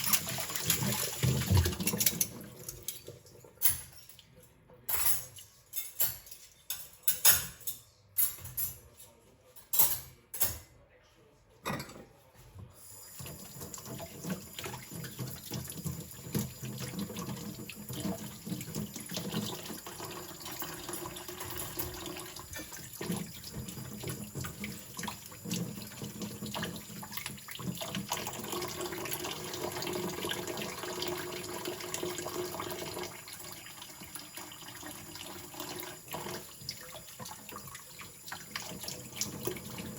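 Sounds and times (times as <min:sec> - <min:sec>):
tap water running: 0:00.0 - 0:04.0, 0:13.1 - 0:39.9
metal cutlery clinking: 0:01.5 - 0:04.3, 0:04.9 - 0:09.0.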